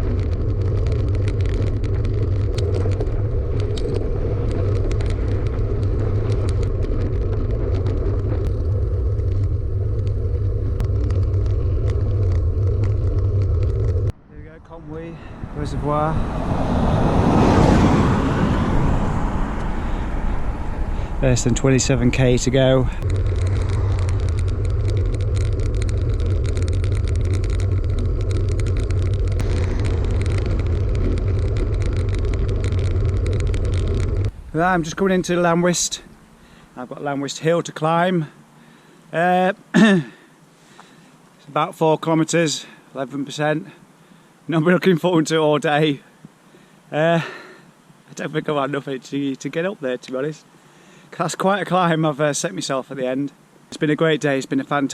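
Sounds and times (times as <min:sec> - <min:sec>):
small clicks and rattles: 0:00.0 - 0:14.1, 0:23.0 - 0:34.4
wind on microphone: 0:00.0 - 0:14.2, 0:14.8 - 0:36.4
road rumble: 0:00.0 - 0:41.7.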